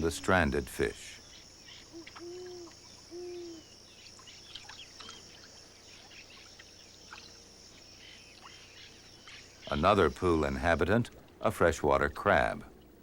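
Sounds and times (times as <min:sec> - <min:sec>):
high insect drone: 0:00.0 - 0:11.0
small chirps: 0:01.2 - 0:10.2
short hooting calls: 0:01.6 - 0:03.8.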